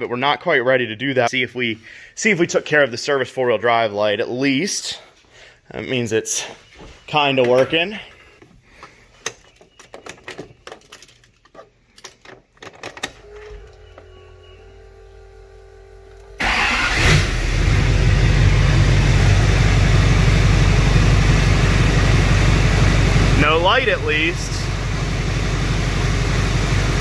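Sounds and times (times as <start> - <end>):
diesel engine starting and idling: 14.3 - 27.0.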